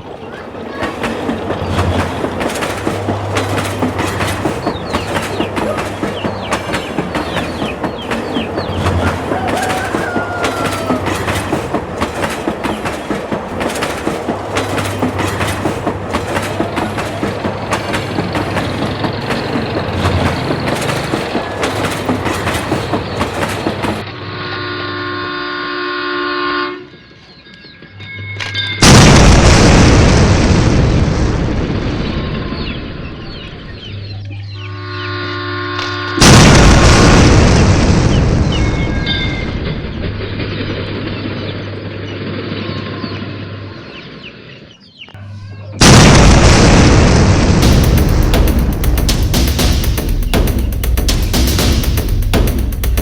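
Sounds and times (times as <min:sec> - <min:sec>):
toy train clattering on track: 0:00.4 - 0:24.0
multi-note electronic horn: 0:24.2 - 0:27.0, 0:34.7 - 0:36.2
loud crash: 0:28.8 - 0:33.1, 0:36.2 - 0:41.3, 0:45.8 - 0:53.0.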